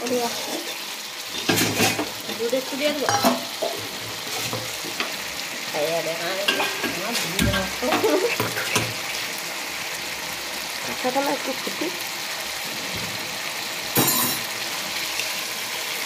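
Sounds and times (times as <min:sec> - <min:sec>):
spatula scraping and knocking pan: 0:00.0 - 0:02.4, 0:03.0 - 0:05.3, 0:06.4 - 0:09.2
vegetables sizzling in oil: 0:00.0 - 0:16.0.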